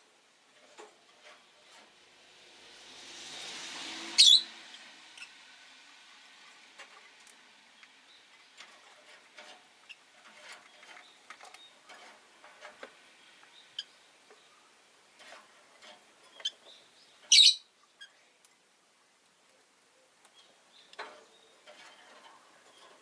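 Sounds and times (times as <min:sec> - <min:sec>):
shrill bird call: 0:04.2 - 0:04.5, 0:17.3 - 0:17.7
lovebirds chirping and clicking: 0:16.3 - 0:18.6.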